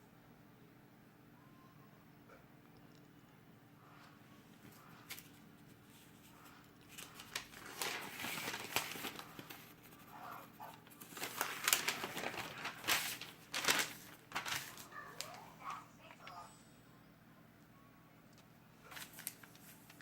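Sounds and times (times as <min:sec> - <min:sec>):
paper rustling and crinkling: 0:04.6 - 0:16.2, 0:18.9 - 0:20.0.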